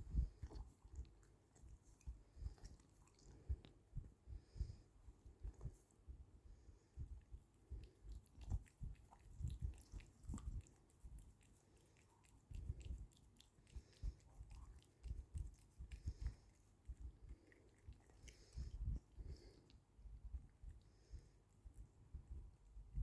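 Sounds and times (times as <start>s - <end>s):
pets licking and chewing: 0.0s - 6.2s, 7.0s - 23.0s.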